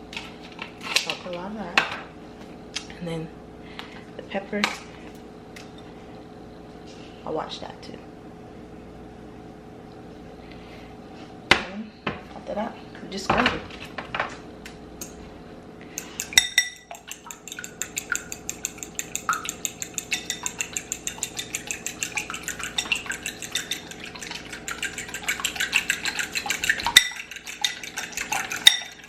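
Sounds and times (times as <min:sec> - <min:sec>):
whisk clicking against bowl: 0:16.0 - 0:29.0.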